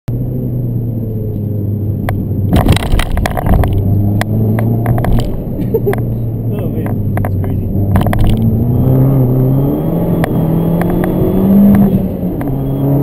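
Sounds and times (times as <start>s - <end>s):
car engine running: 0.1s - 13.0s
scattered clicks: 2.0s - 6.1s, 6.8s - 8.5s
sharp knocks and rattles: 2.0s - 6.1s, 6.8s - 8.5s.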